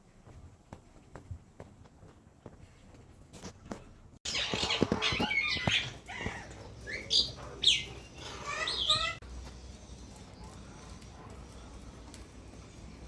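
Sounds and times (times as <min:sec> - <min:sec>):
caged birds chattering and squawking: 0:04.2 - 0:13.0.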